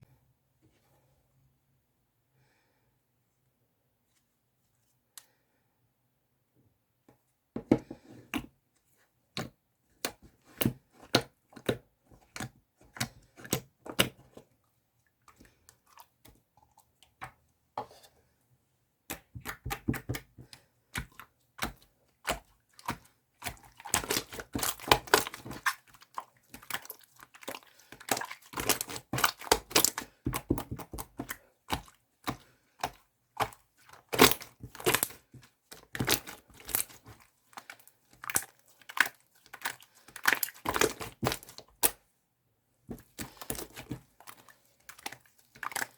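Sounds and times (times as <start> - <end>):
slime squishing with sticky pops: 19.0 - 42.0, 42.9 - 45.9.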